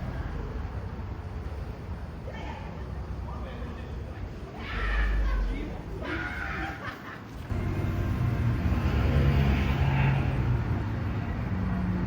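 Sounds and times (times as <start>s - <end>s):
street traffic: 0.0s - 3.3s, 7.4s - 12.0s
vehicle engine passing: 7.5s - 12.0s.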